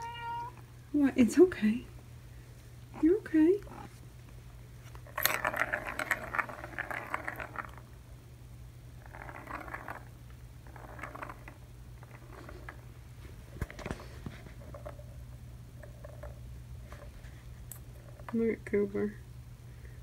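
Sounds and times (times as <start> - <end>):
plastic balls rattling in toy track: 5.0 - 7.8, 9.0 - 12.8.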